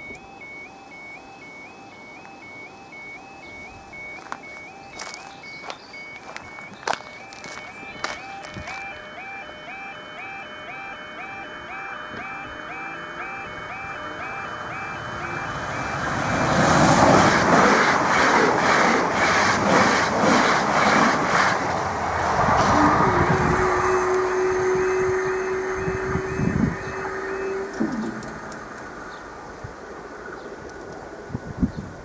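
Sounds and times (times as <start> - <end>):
crossing warning alarms: 0.0 - 21.4, 22.0 - 29.9
steady train hum: 0.0 - 32.0.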